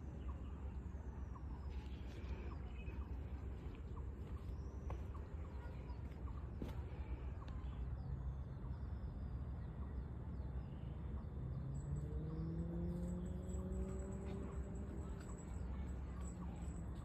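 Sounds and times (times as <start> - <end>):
vehicle engine hum rising: 10.6 - 17.0.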